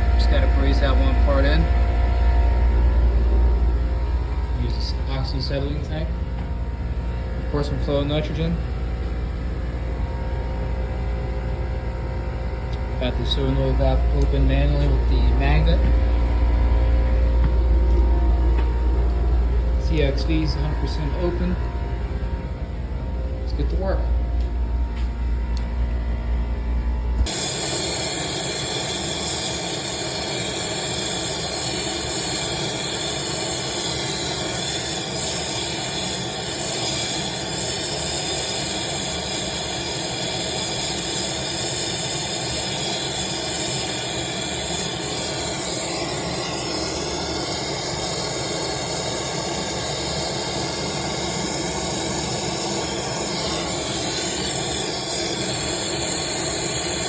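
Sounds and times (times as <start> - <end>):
torch flame hissing: 27.2 - 57.0.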